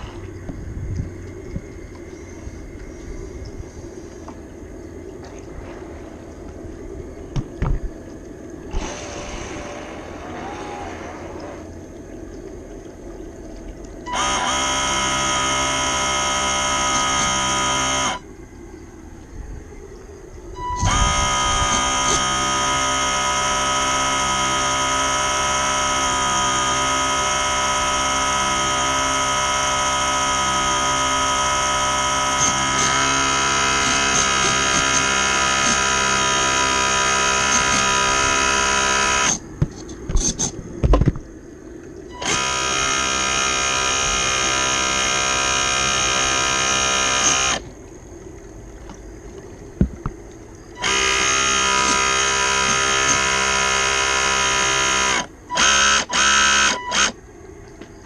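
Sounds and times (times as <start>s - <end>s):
small electric motor whining: 8.7s - 11.7s, 14.1s - 18.3s, 20.6s - 39.4s, 42.1s - 47.7s, 50.8s - 57.2s.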